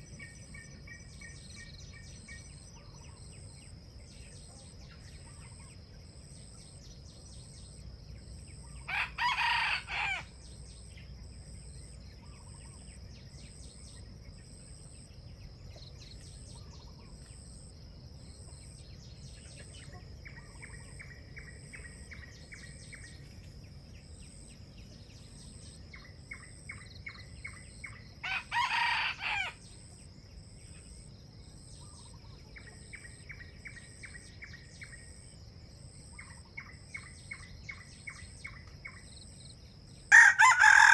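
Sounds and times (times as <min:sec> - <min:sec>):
high insect drone: 0:00.0 - 0:40.9
rooster crowing: 0:08.9 - 0:10.3, 0:28.2 - 0:29.6, 0:40.1 - 0:40.9.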